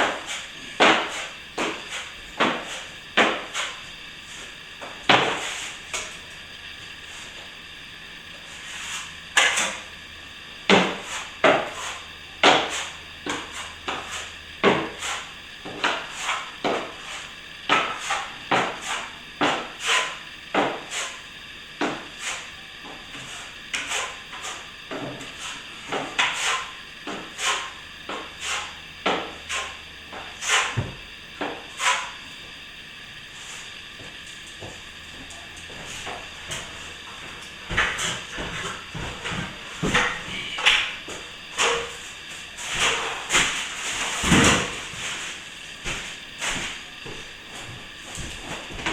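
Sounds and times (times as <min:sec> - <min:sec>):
hand tools knocking and scraping: 0:00.0 - 0:03.8, 0:10.7 - 0:21.2, 0:21.8 - 0:32.2, 0:34.0 - 0:42.0.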